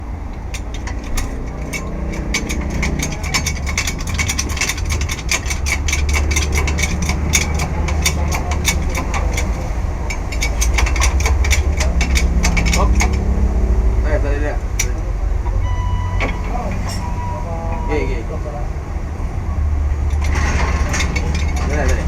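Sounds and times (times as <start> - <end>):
steady low hum: 0.0 - 22.0
ratchet wrench clicking: 0.4 - 13.4.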